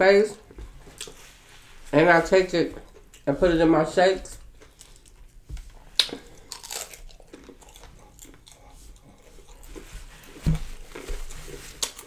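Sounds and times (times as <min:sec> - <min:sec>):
crunchy chewing of fried fish: 0:04.5 - 0:10.4.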